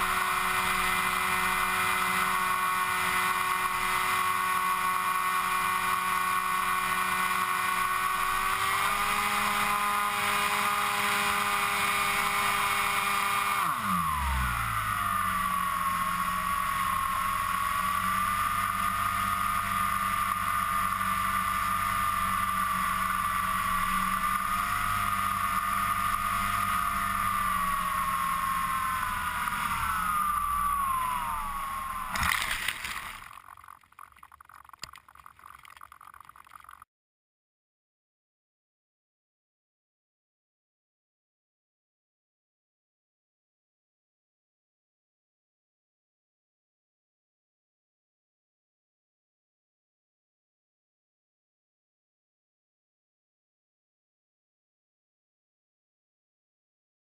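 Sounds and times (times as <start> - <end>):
model aircraft motor and propeller: 0.0 - 36.9.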